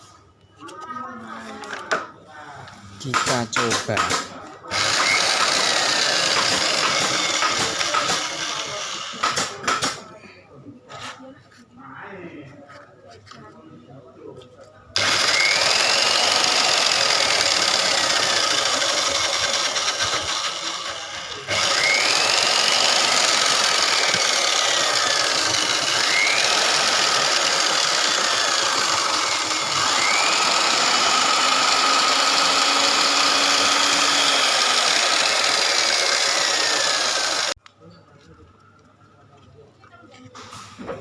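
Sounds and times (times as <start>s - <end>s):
foam shredding machine running: 3.0s - 10.0s, 15.0s - 37.6s.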